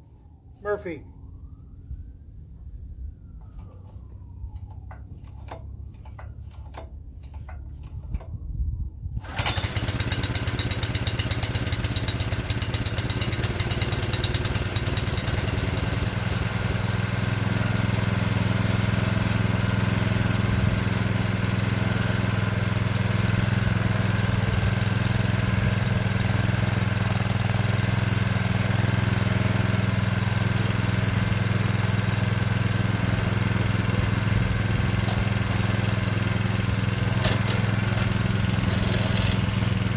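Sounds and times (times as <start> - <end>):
small gasoline engine running: 3.4 - 8.3, 9.2 - 39.9
small engine knocks: 34.9 - 36.1, 37.0 - 39.9.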